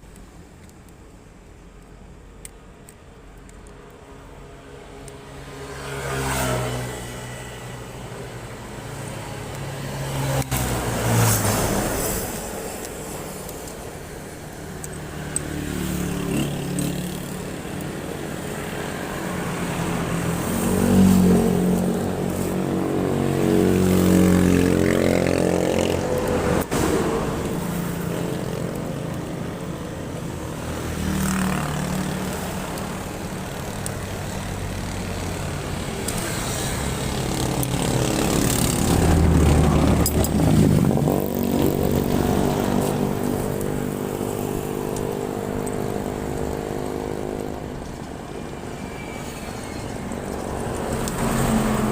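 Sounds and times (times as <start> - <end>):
motorcycle engine revving: 15.0 - 48.3.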